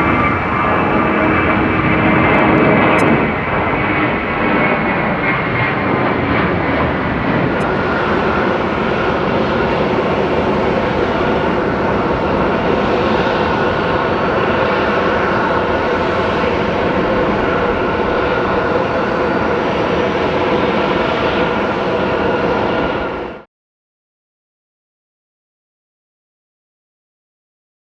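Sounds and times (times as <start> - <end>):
engine whining tones: 0.0 - 3.0, 7.6 - 21.0
jet engines roaring: 0.0 - 23.4.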